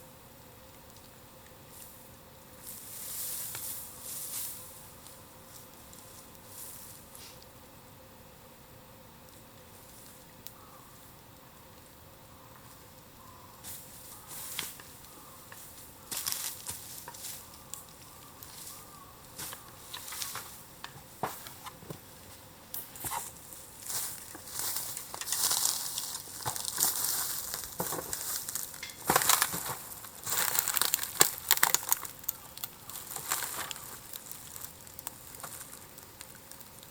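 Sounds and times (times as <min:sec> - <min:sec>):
bonfire crackling and popping: 0:00.4 - 0:02.9, 0:14.5 - 0:22.1, 0:22.7 - 0:36.9.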